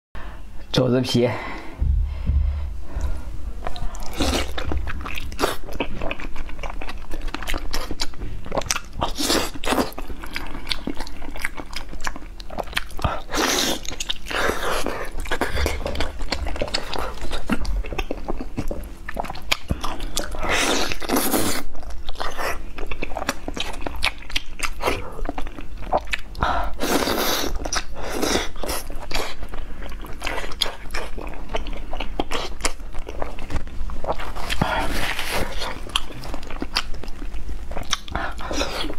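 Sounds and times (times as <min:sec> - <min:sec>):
wet chewing mouth sounds: 0:03.7 - 0:38.9.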